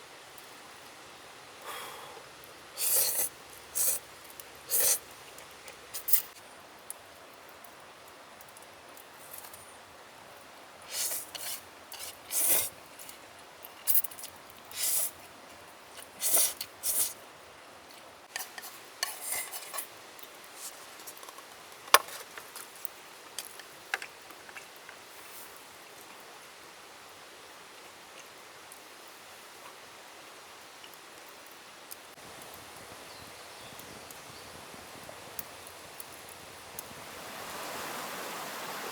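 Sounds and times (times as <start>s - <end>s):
cookware scraping and rustling: 18.3s - 19.9s.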